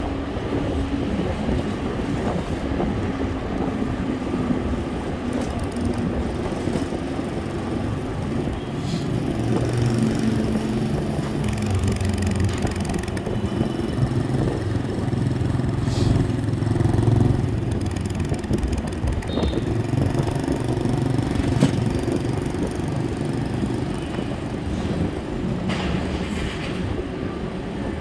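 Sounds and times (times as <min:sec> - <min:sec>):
road traffic with motorbikes: 0:00.0 - 0:28.0.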